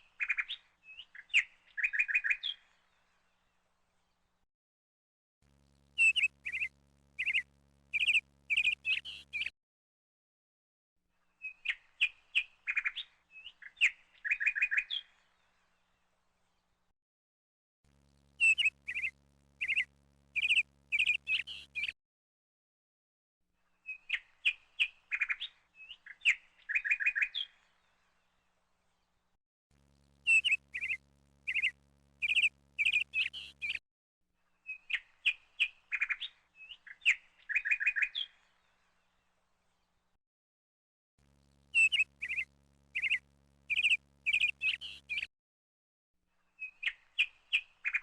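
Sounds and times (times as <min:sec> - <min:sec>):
small bird chirping: 0:00.0 - 0:02.7, 0:06.0 - 0:09.5, 0:11.4 - 0:15.2, 0:18.4 - 0:22.0, 0:23.8 - 0:27.6, 0:30.2 - 0:33.8, 0:34.6 - 0:38.4, 0:41.7 - 0:45.3, 0:46.5 - 0:48.0.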